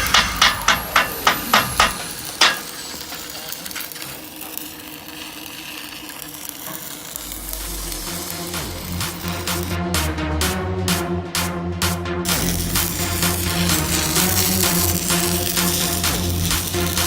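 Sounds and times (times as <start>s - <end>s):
sharp drum-like hits: 0.0s - 2.8s
crackling hiss: 0.0s - 9.7s, 12.3s - 17.0s.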